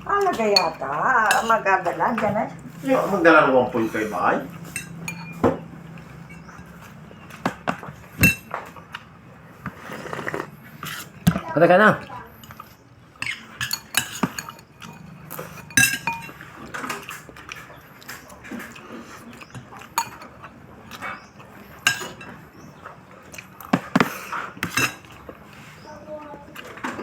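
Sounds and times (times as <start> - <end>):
cutlery clinking on plates: 0.2 - 1.6, 3.9 - 8.8, 13.2 - 25.6.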